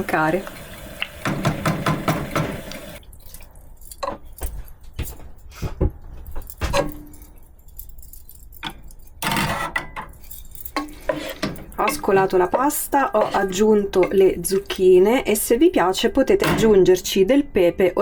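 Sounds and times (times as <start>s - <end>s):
pots and utensils clattering: 1.2s - 3.0s, 8.6s - 14.9s.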